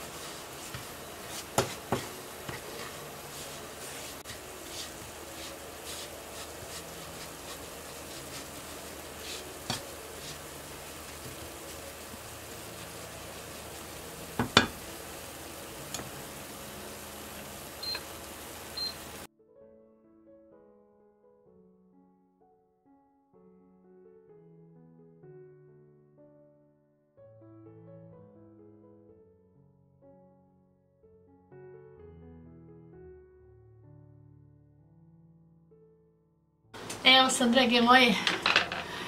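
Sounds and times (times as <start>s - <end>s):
spoon scraping and knocking pan: 0.0s - 15.0s, 38.2s - 39.0s
food sizzling in a pan: 0.0s - 19.3s, 36.8s - 39.0s.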